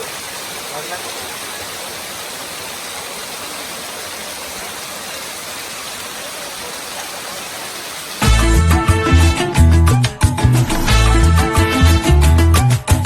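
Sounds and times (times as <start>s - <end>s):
waterfall rushing: 0.0s - 12.3s
loud dance music: 8.2s - 13.0s.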